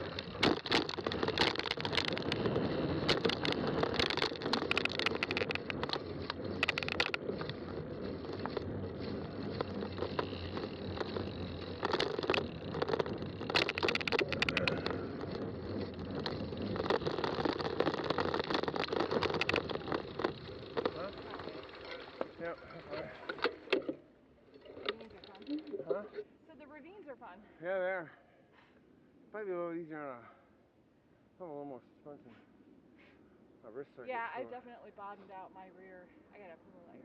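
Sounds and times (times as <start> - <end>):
bike rattling and clicking: 0.0 - 26.1
bike tyres rolling: 0.0 - 26.2.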